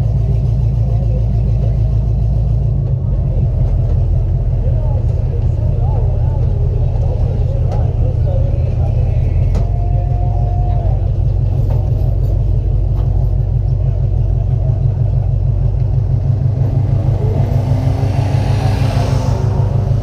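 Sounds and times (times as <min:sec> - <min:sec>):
fainter engine tones: 0:00.0 - 0:20.0
race car engine rumbling: 0:00.0 - 0:20.0
hissing swell: 0:16.4 - 0:20.0.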